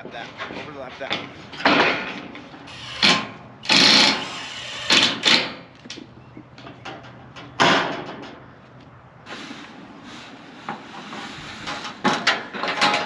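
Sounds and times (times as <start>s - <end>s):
sheet metal scraping and rattling: 0.0s - 5.7s, 9.3s - 13.0s.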